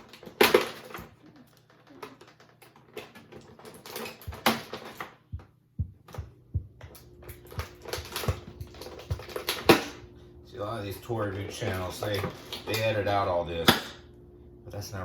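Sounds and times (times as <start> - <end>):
toy packaging crinkling and clicking: 0.0 - 5.2, 7.0 - 10.0.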